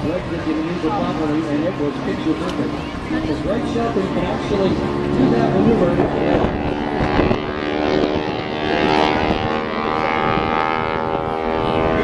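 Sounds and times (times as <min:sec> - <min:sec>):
propeller airplane engine droning: 0:00.0 - 0:12.0.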